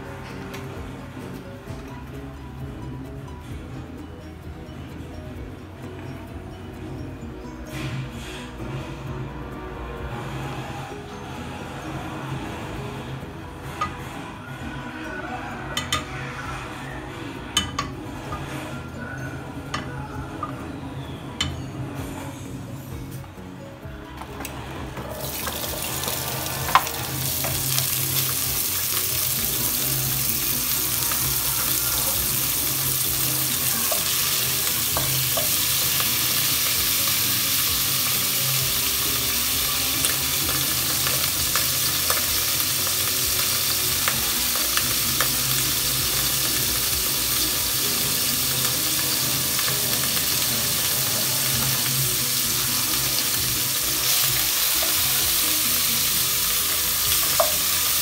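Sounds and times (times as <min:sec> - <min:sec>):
vegetables sizzling in oil: 0:25.1 - 0:58.0.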